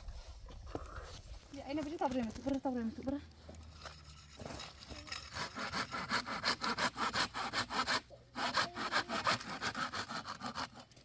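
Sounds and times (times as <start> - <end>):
hand saw cutting wood: 3.9 - 11.0.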